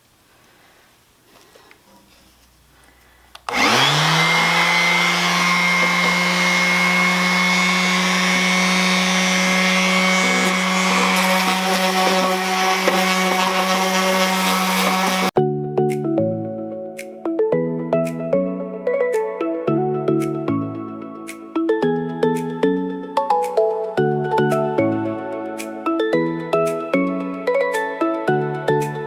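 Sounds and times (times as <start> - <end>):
orbital sander humming: 3.5 - 15.4.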